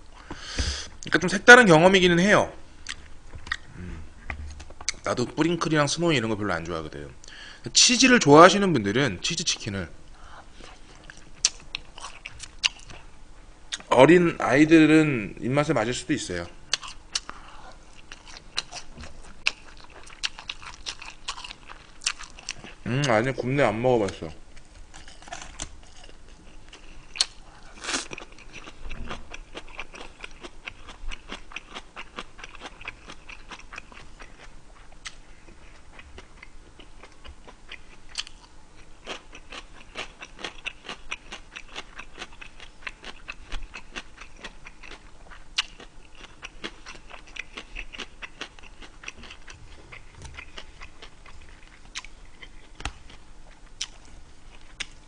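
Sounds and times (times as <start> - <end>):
man chewing food: 2.8 - 5.1, 10.2 - 13.9, 16.7 - 23.1, 24.5 - 55.0.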